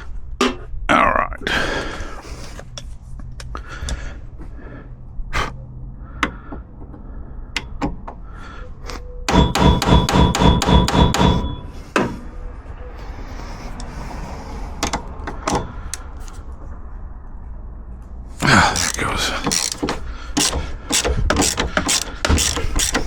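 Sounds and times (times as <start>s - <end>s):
hammer striking metal: 9.3s - 12.2s.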